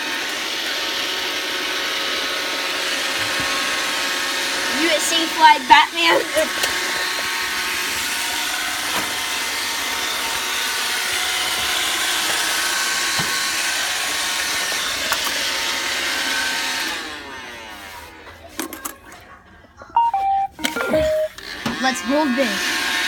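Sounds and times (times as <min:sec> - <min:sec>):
robot vacuum motor whirring: 0:00.2 - 0:17.0.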